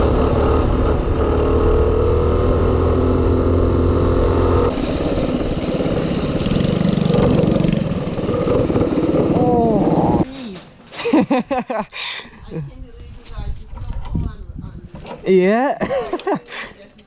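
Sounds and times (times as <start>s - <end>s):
minibike engine running: 0.0s - 10.2s.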